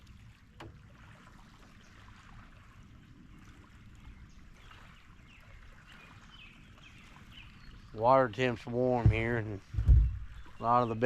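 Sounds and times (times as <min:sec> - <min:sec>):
water lapping: 0:00.0 - 0:11.0
wind rumble on microphone: 0:08.8 - 0:11.0.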